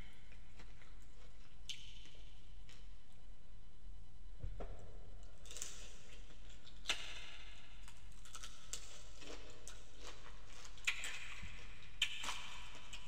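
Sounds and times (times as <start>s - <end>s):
wet chewing clicks: 5.4s - 13.0s.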